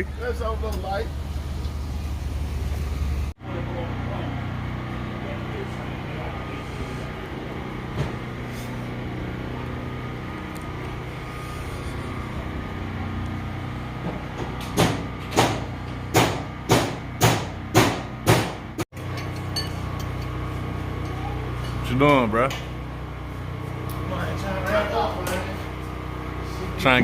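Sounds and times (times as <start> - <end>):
mechanical hum: 0.0 - 27.0
loud ringing knocks: 14.1 - 18.7.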